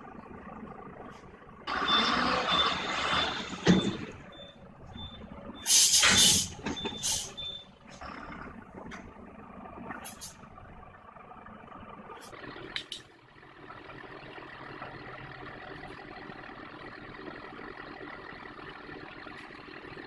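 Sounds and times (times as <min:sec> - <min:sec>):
truck reversing alarm beeping: 0:01.7 - 0:08.4
air brake hiss: 0:05.7 - 0:07.4.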